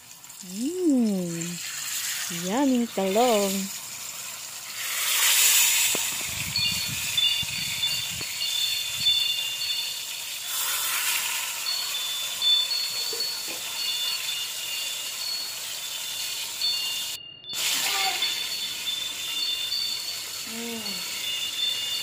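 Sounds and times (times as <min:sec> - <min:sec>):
omelette sizzling in oil: 0:00.0 - 0:22.0
faint high thin tones: 0:04.8 - 0:22.0.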